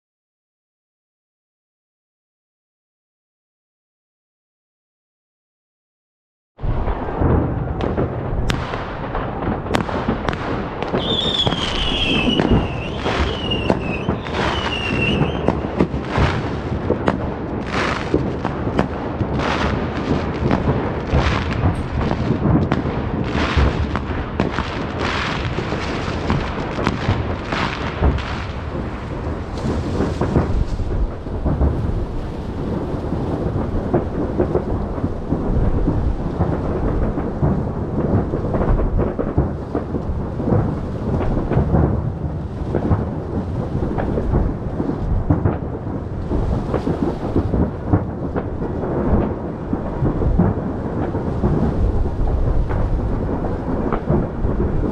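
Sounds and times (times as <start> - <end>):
fireworks booming and crackling: 6.6 - 54.9
firework whistle: 10.8 - 15.8.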